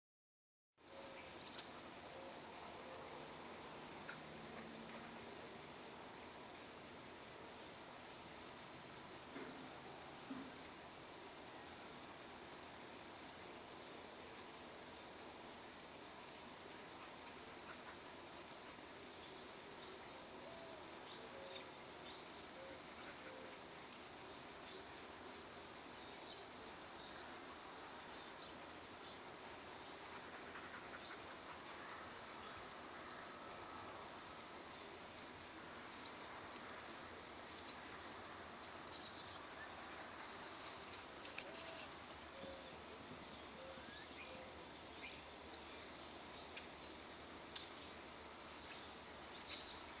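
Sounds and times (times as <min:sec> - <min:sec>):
small birds chirping: 0:00.9 - 0:01.9, 0:16.2 - 0:33.4, 0:34.6 - 0:50.0.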